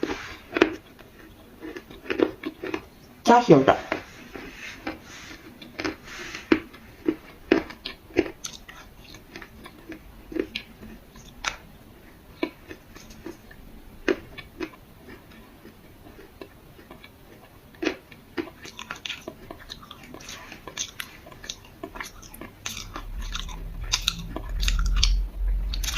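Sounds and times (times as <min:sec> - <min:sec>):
crunching and chewing clay: 0:00.0 - 0:25.9.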